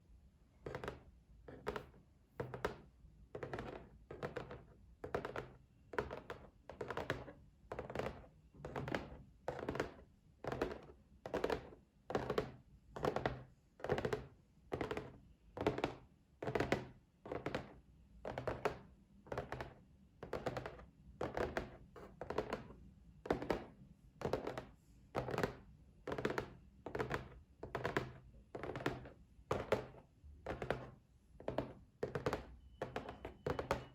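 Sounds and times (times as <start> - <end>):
tapping on a box: 0.6 - 17.7, 23.3 - 33.9.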